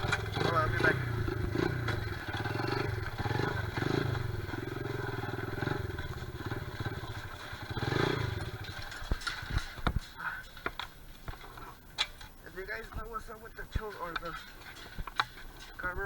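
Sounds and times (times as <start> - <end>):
small motorbike engine revving: 0.0 - 9.6.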